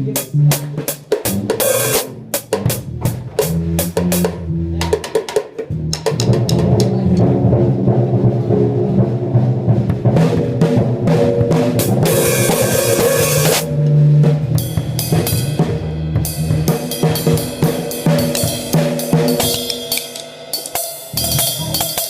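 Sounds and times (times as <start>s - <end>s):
drum kit playing: 0.0s - 22.0s
held low instrument notes: 5.7s - 16.6s
cymbal hits: 10.4s - 15.5s.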